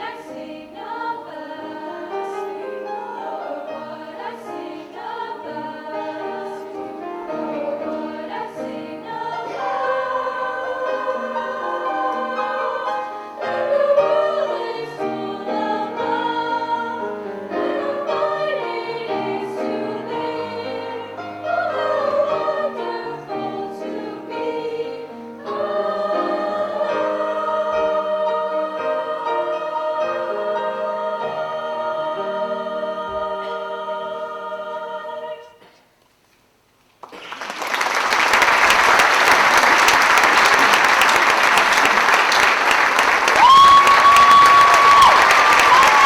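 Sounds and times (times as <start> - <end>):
vocal ensemble singing chords: 0.0 - 35.8, 39.1 - 46.0.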